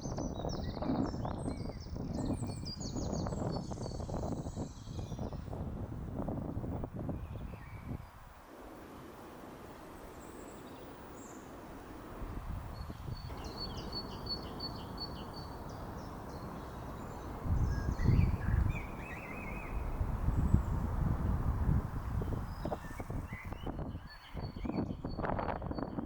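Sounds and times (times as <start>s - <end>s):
bird warbling call: 13.1s - 20.0s.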